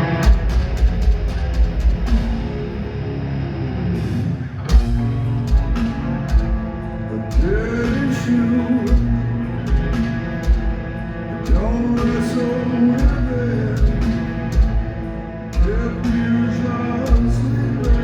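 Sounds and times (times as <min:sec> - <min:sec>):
distorted guitar chords: 0:00.0 - 0:18.0
person singing: 0:07.1 - 0:09.8, 0:11.4 - 0:14.3, 0:15.5 - 0:18.0.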